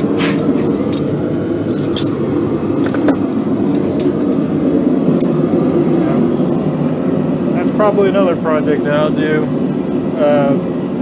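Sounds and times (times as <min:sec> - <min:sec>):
light metallic clicks: 0:02.8 - 0:04.5.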